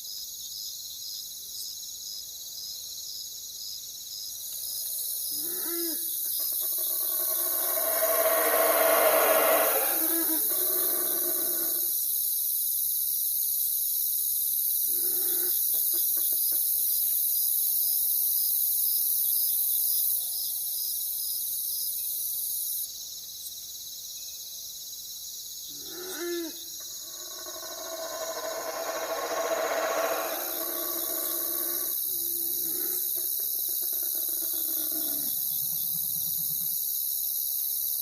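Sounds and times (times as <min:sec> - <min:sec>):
night insects chirping: 0:00.0 - 0:38.0
owl calls: 0:05.4 - 0:11.9, 0:25.8 - 0:35.3.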